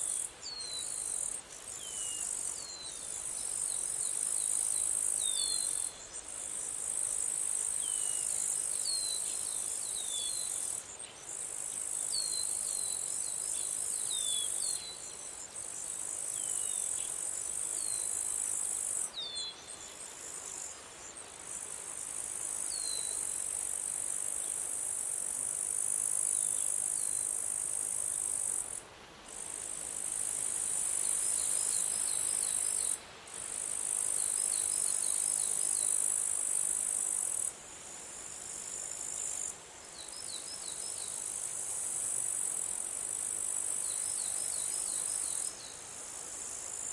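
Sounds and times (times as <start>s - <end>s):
insects trilling: 29.4s - 37.5s, 38.3s - 45.7s.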